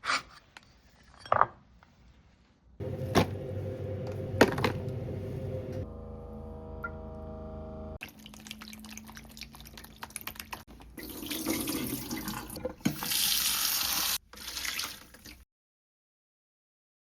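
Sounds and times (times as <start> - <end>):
tap water running into sink: 8.0 - 15.3.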